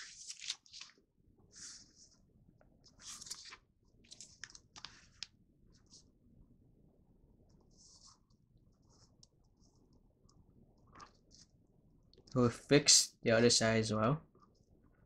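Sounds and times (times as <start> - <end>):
paper rustling and crinkling: 0.0 - 2.2, 2.9 - 5.3.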